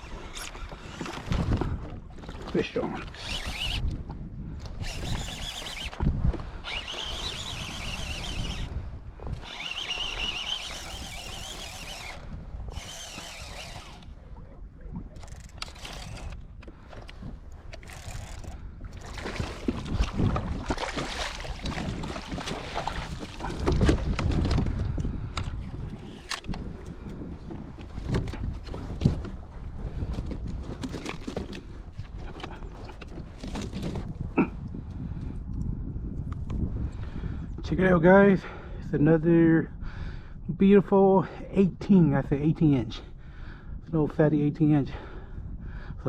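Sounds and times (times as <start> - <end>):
fishing reel cranking: 0.0 - 1.2, 3.0 - 4.0, 4.8 - 6.0, 6.6 - 14.2, 15.2 - 16.5, 17.7 - 19.2
fishing rod handling: 0.0 - 29.4
wind noise: 0.0 - 40.7, 42.1 - 46.0.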